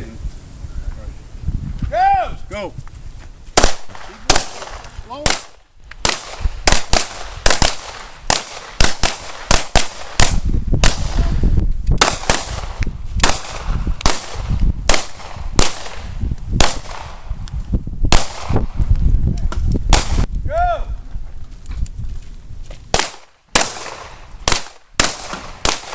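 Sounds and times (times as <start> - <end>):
pistol shots cracking: 3.6 - 11.4, 12.0 - 17.3, 18.1 - 18.8, 19.9 - 20.3, 22.9 - 25.9.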